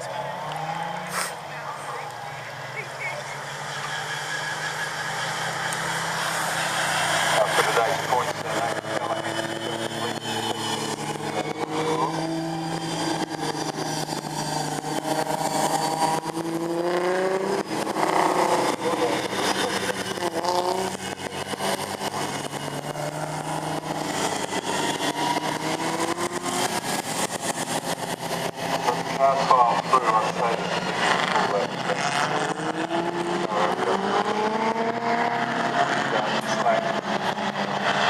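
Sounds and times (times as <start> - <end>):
race car engines passing: 0.0 - 38.0.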